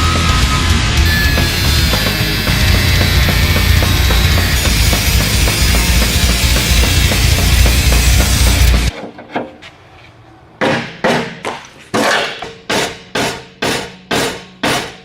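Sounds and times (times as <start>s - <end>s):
rock music: 0.0s - 8.9s
hammer striking metal: 1.0s - 9.0s, 10.6s - 15.0s.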